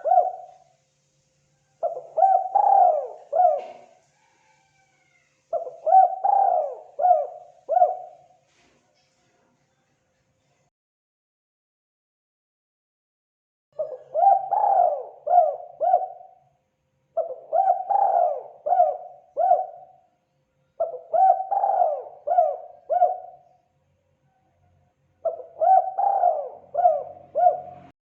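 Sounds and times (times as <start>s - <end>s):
dove cooing: 0.0s - 0.6s, 1.7s - 8.4s, 13.8s - 16.4s, 17.2s - 20.0s, 20.8s - 23.6s, 25.2s - 28.0s.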